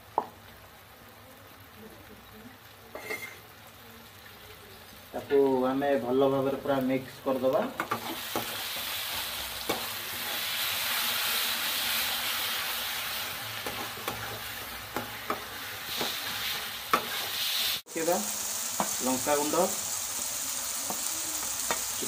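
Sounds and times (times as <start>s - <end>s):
onions sizzling in hot oil: 0.0s - 22.0s
metal spatula scraping a pan: 3.0s - 3.4s, 7.8s - 17.8s.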